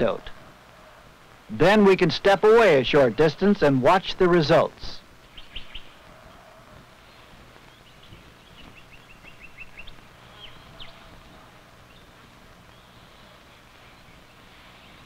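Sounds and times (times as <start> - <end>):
outdoor background hiss: 0.0 - 15.0
faint bird chirps: 5.2 - 15.0.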